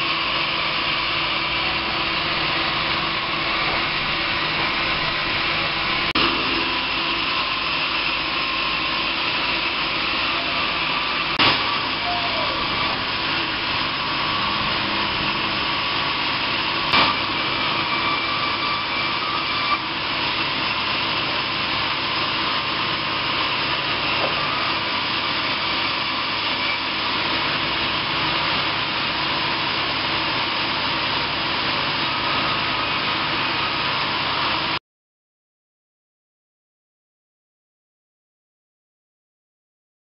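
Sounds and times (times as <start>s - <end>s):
sawmill machinery running: 0.0s - 34.8s
sharp knock: 11.4s - 11.7s.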